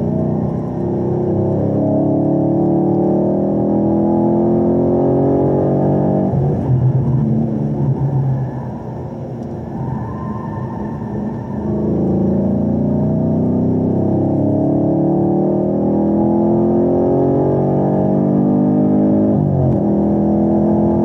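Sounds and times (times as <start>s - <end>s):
car engine accelerating hard: 0.0s - 9.6s, 10.4s - 21.0s.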